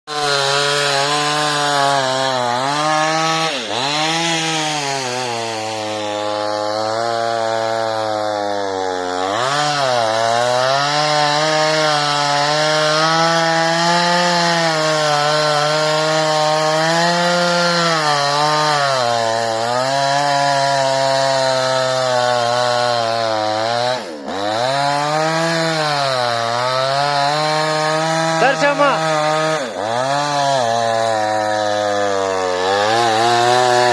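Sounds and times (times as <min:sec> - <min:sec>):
chainsaw cutting tree: 0:00.1 - 0:33.9.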